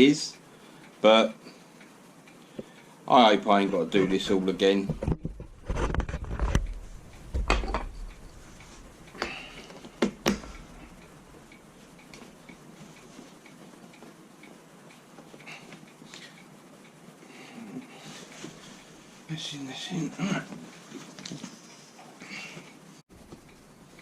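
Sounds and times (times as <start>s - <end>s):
sharp knocks and clicks: 4.8s - 8.3s, 9.2s - 10.7s.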